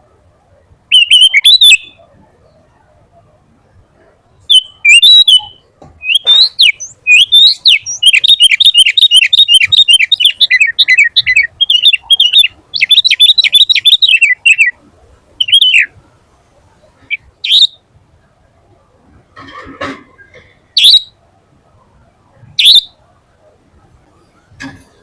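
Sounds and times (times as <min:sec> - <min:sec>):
bird singing whistled notes: 0:00.9 - 0:02.6, 0:04.5 - 0:14.8, 0:15.4 - 0:15.9, 0:17.0 - 0:17.8, 0:20.8 - 0:21.2, 0:22.6 - 0:23.0.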